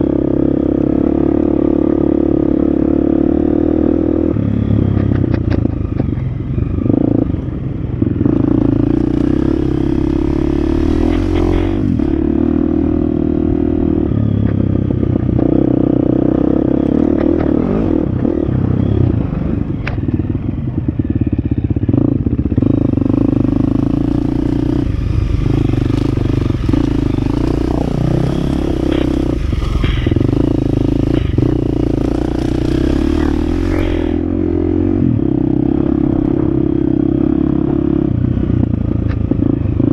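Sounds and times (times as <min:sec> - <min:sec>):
dirt bike engine revving: 0:08.2 - 0:14.0, 0:21.9 - 0:38.1.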